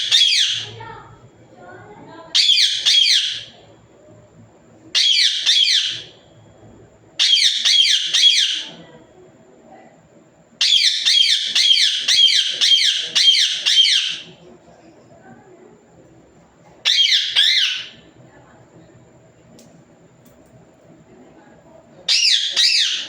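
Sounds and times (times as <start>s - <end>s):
parrot screeching: 0.0s - 0.8s, 2.4s - 3.6s, 5.0s - 6.1s, 7.2s - 8.8s, 10.6s - 14.3s, 16.8s - 18.1s, 22.1s - 23.0s.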